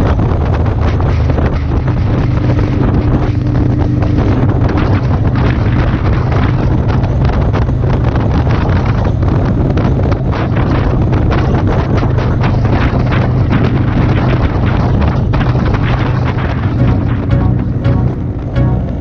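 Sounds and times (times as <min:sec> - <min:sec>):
wind buffeting microphone: 0:00.0 - 0:18.6.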